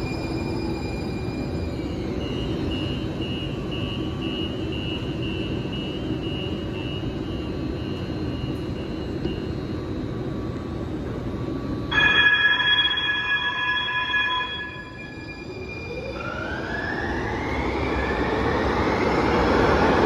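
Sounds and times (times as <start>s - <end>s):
high pulsing beeps: 11.9s - 16.2s.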